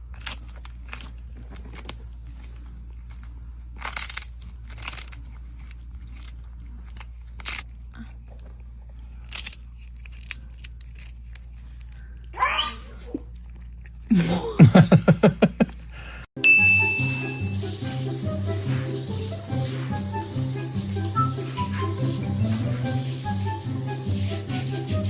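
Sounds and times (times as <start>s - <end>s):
crisp crunching chewing: 0.0s - 12.4s, 13.1s - 14.2s.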